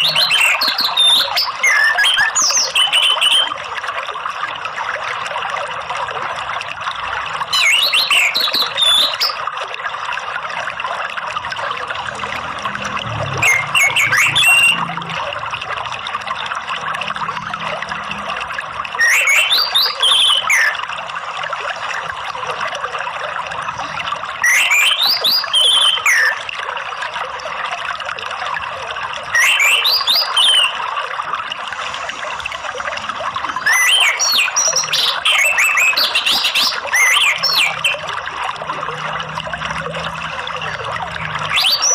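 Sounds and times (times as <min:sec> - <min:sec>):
thrush singing whistled phrases: 0:00.0 - 0:03.6, 0:07.5 - 0:09.4, 0:13.4 - 0:15.0, 0:19.0 - 0:20.8, 0:24.4 - 0:26.4, 0:29.2 - 0:30.8, 0:31.8 - 0:38.2, 0:41.3 - 0:41.9
running water: 0:00.0 - 0:41.9.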